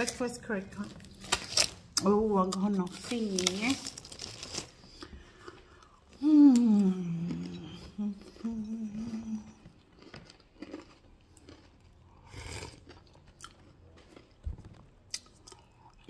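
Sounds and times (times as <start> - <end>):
person chewing a cracker: 3.8 - 16.0
person humming: 6.2 - 9.6.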